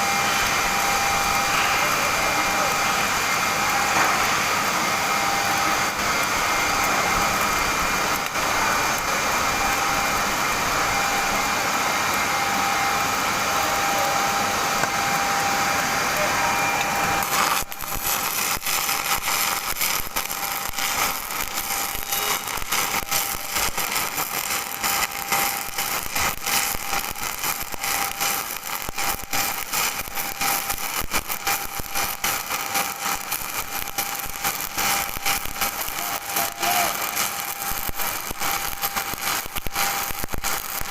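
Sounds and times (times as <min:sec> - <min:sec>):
welding arc crackling: 0:00.0 - 0:40.9
welding arc hissing: 0:00.0 - 0:40.9.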